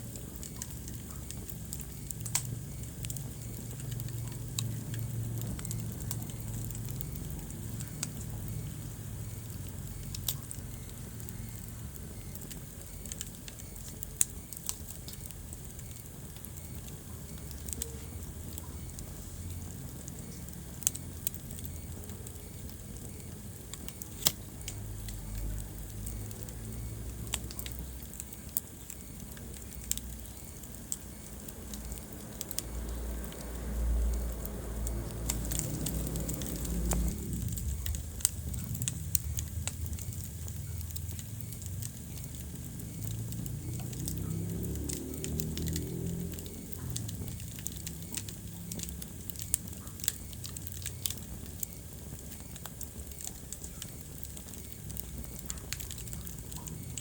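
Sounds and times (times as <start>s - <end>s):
wood fire crackling: 0.0s - 57.0s
low rumble: 32.6s - 47.6s.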